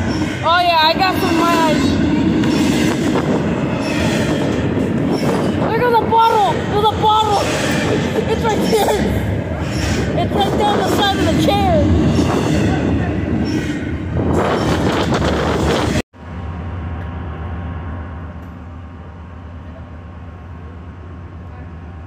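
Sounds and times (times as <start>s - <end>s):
freight train rolling past: 0.0s - 22.0s
diesel locomotive engine idling: 16.2s - 22.0s.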